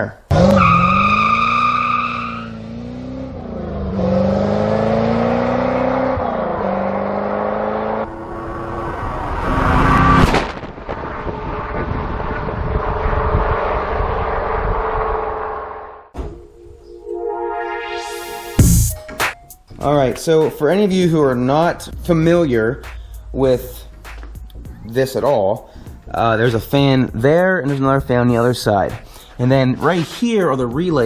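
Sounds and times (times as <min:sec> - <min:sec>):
car engine revving: 0:00.3 - 0:16.1.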